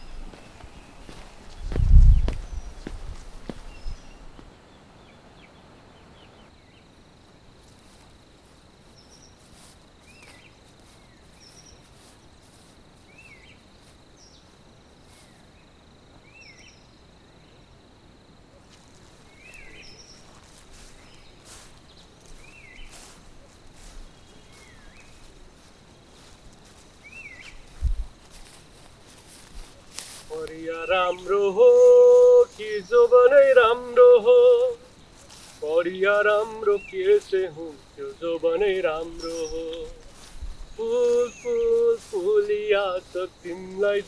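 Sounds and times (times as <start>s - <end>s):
high insect drone: 0.0s - 4.5s, 6.6s - 44.0s
bird chirping: 0.0s - 6.9s, 30.3s - 44.0s.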